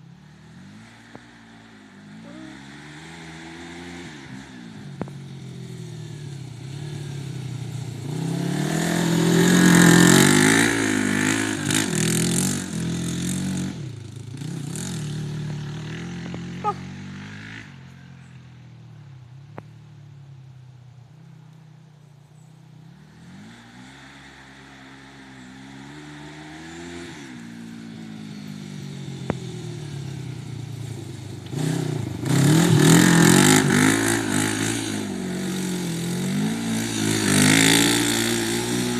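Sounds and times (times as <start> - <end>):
quad engine revving: 0.0 - 18.0, 22.9 - 38.9.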